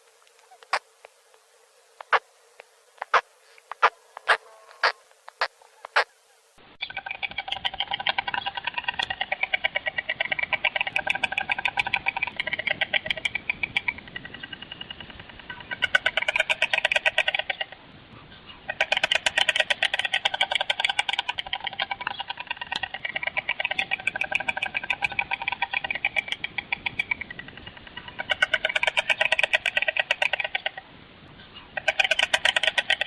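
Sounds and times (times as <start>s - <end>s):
stork bill clattering: 6.8s - 17.8s, 18.7s - 30.8s, 31.7s - 33.0s.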